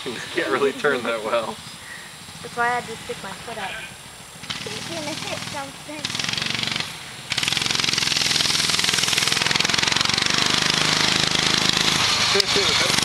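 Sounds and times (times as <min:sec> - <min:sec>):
small engine running hard: 0:00.0 - 0:13.0.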